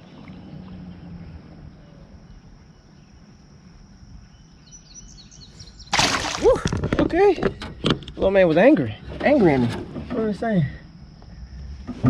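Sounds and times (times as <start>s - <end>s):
high insect drone: 9.4s - 12.0s.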